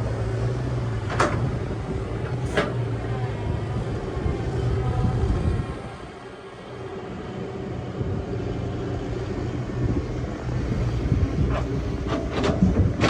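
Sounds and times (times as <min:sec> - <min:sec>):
excavator engine running: 0:00.0 - 0:13.0.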